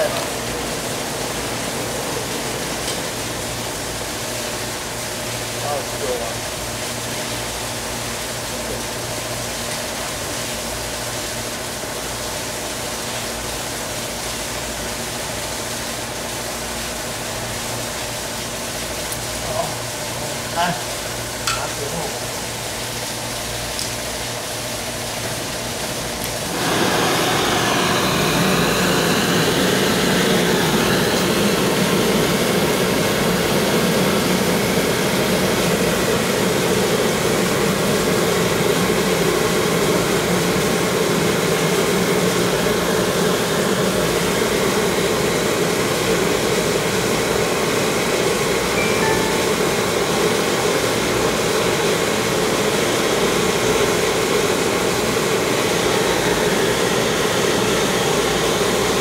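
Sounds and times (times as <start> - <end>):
faint sweeping whine: 48.8 - 50.2.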